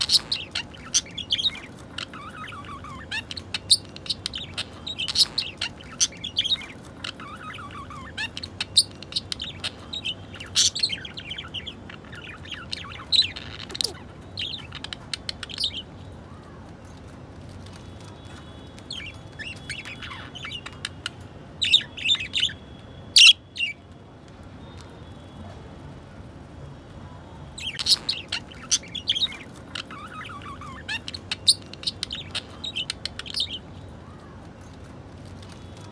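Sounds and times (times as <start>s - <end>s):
budgerigars chirping: 0.0s - 15.9s, 18.3s - 22.6s, 23.2s - 23.8s, 27.6s - 33.8s
sharp bird calls: 0.0s - 16.6s, 17.7s - 23.8s, 27.6s - 34.5s.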